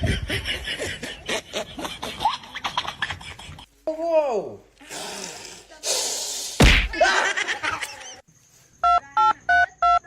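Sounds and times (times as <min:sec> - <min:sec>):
loud sharp whack: 0:06.6 - 0:07.0.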